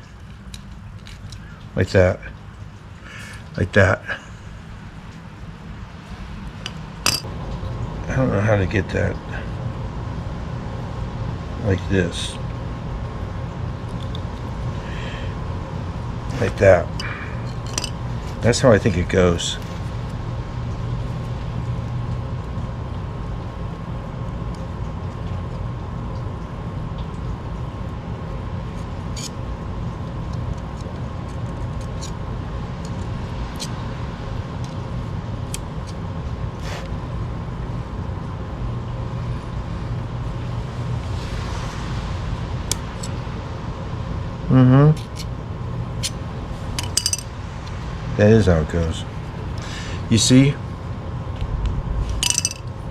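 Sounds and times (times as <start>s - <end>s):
background hum: 0.0s - 52.9s
small metal parts clicking: 6.6s - 7.3s, 16.9s - 18.0s, 46.8s - 47.3s, 52.1s - 52.7s.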